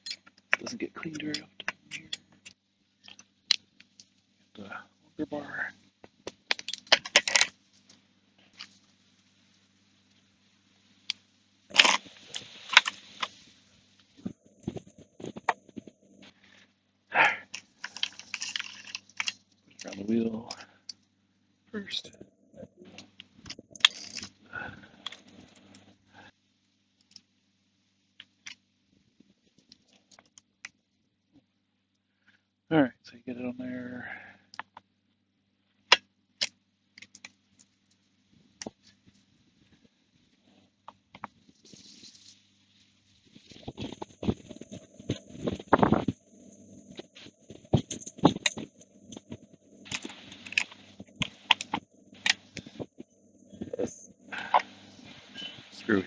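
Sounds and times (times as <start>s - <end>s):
chainsaw parts clicking and rattling: 6.5s - 7.5s, 17.6s - 20.6s, 23.8s - 24.4s.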